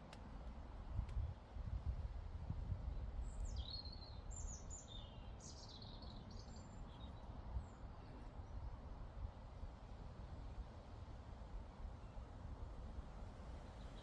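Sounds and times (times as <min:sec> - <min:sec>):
wind rumble on microphone: 0:00.8 - 0:04.6.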